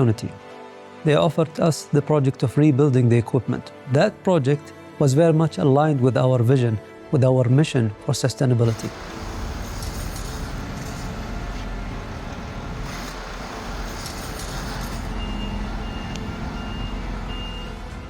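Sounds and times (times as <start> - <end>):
heavy machinery engine rumble: 8.7 - 18.0
reversing alarm beeps: 14.1 - 18.0.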